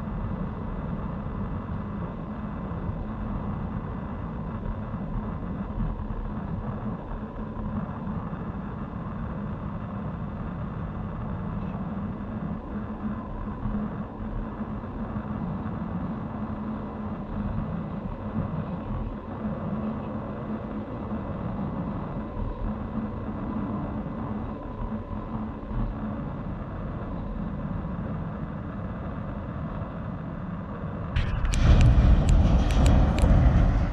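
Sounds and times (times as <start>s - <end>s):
rush of noise with clicks: 31.2s - 33.9s
train wheels rumbling and rattling: 31.2s - 33.9s.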